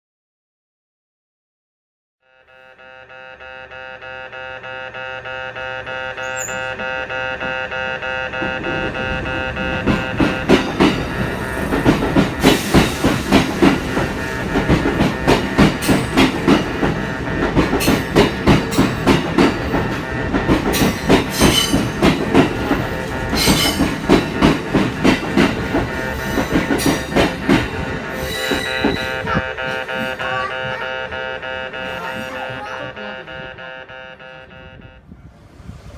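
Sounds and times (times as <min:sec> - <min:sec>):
train wheels clattering over joints: 0:08.4 - 0:30.2.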